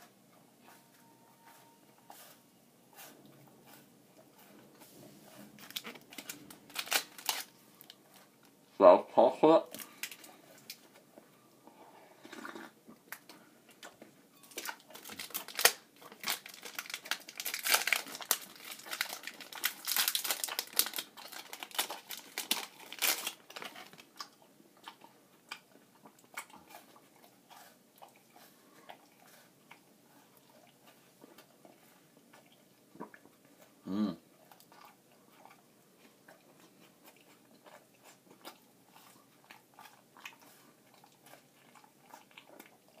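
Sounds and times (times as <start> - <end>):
plastic wrapper tearing and crinkling: 5.6 - 8.0, 9.7 - 10.8, 14.5 - 24.2
chewing crunches: 12.3 - 33.8, 34.4 - 43.0.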